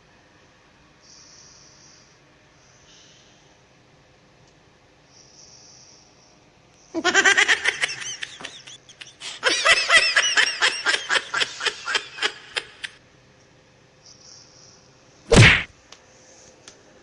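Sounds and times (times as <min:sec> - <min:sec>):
person giggling: 0:07.0 - 0:13.0.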